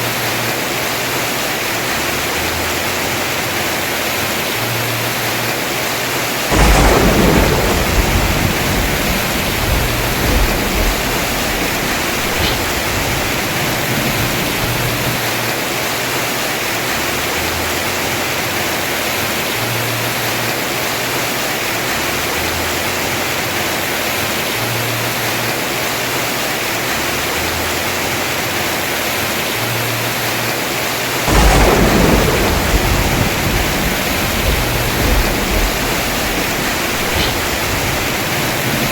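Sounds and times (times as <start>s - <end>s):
heavy rain on a roof: 0.0s - 38.9s
thunder rumbling: 6.5s - 15.6s, 31.2s - 38.9s.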